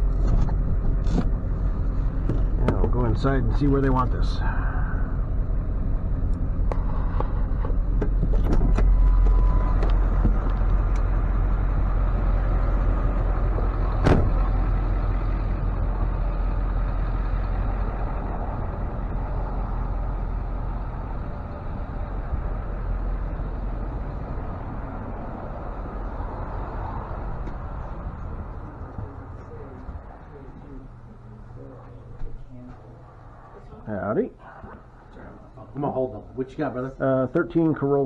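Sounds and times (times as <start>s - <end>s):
truck engine idling: 0.0s - 33.8s
sharp knock: 14.0s - 14.5s.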